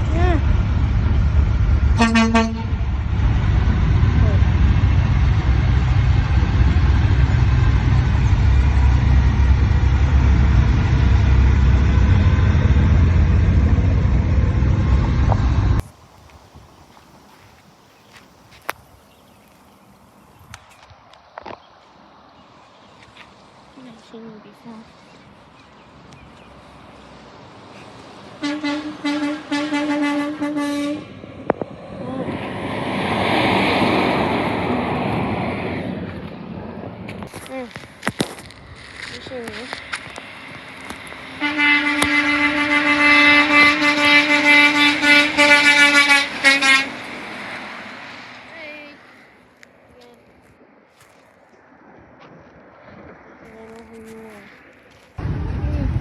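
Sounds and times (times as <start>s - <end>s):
road noise: 0.0s - 56.0s
truck passing: 0.0s - 56.0s
vehicle engine rumble: 0.0s - 56.0s
truck air horn blasts: 2.0s - 2.8s, 28.4s - 31.2s, 41.4s - 47.0s.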